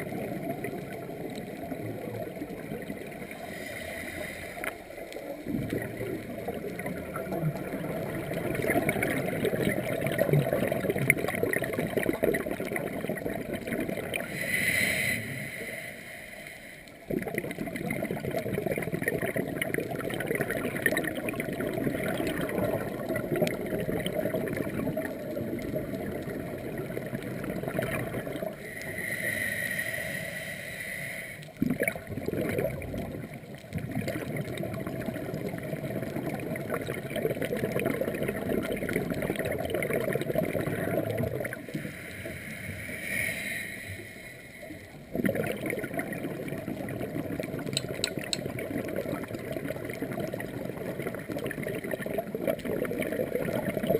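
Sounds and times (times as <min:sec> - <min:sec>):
crackling exhaled bubbles: 0:00.0 - 0:53.9
regulator breathing underwater: 0:03.3 - 0:05.0, 0:14.2 - 0:17.0, 0:28.4 - 0:31.6, 0:41.6 - 0:45.1.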